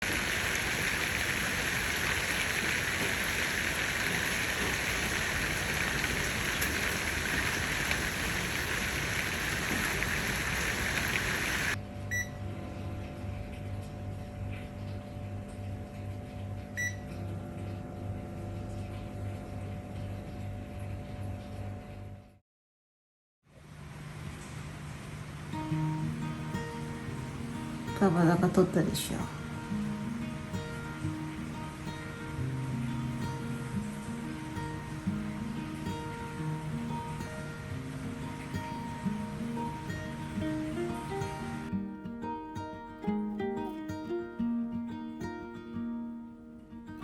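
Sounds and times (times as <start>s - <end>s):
heavy rain hissing: 0.0s - 11.8s, 23.9s - 41.8s
electrical hum: 0.0s - 22.4s, 23.8s - 41.9s.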